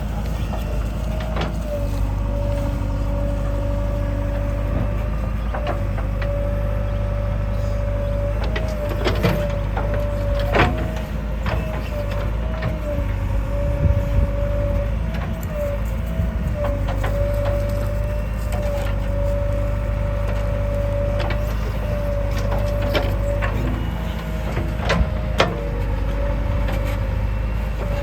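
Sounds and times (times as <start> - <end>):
constant whine: 0.0 - 28.0
diesel engine running: 0.0 - 28.0
knocks and clanks: 21.0 - 27.1.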